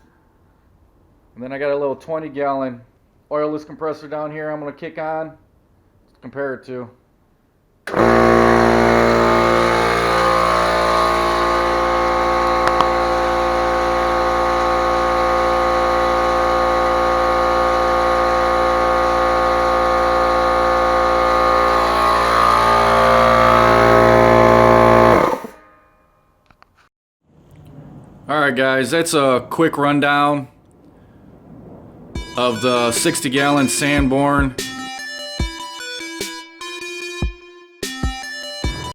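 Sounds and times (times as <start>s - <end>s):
air compressor running: 7.9s - 25.6s.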